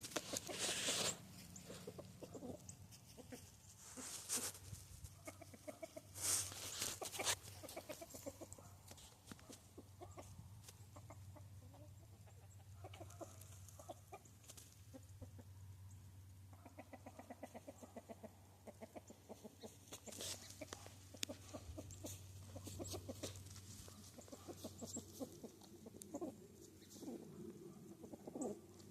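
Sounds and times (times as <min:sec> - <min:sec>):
chickens clucking: 0:00.0 - 0:28.9
rustling bursts: 0:06.2 - 0:07.8.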